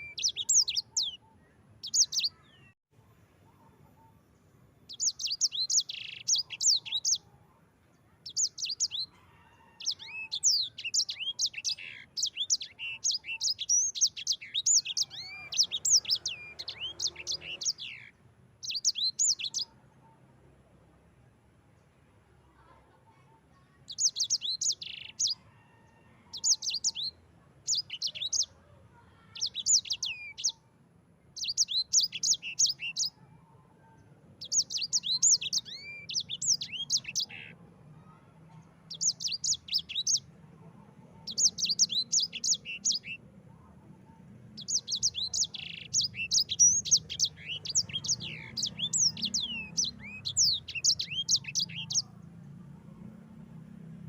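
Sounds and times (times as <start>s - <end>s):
canary singing rapid chirps: 0.0s - 2.8s, 4.9s - 7.3s, 8.2s - 19.8s, 23.9s - 28.6s, 29.2s - 30.6s, 31.3s - 33.3s, 34.3s - 37.6s, 38.8s - 43.2s, 44.1s - 52.4s.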